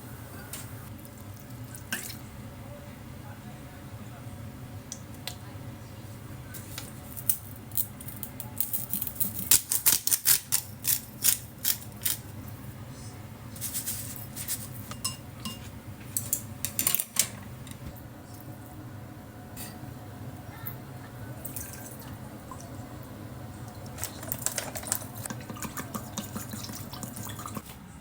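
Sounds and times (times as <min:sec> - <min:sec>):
dishes and cutlery clinking: 0:13.6 - 0:17.9, 0:23.9 - 0:27.6.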